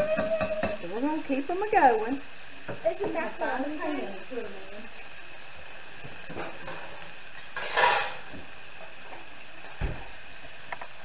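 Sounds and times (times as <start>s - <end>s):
meat sizzling in hot oil: 0.0s - 11.0s
pots and pans clattering: 6.3s - 8.5s.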